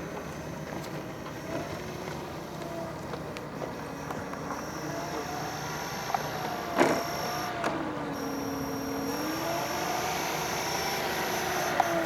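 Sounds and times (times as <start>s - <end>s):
model airplane motor droning: 0.0s - 12.0s.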